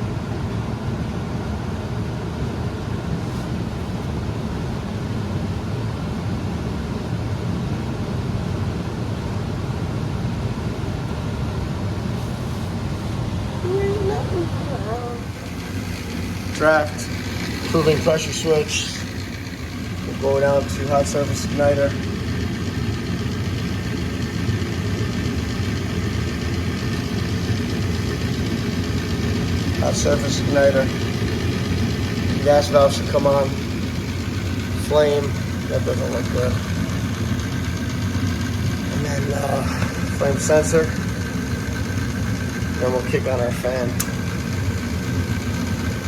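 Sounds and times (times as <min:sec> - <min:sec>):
furnace motor humming: 0:10.0 - 0:46.0.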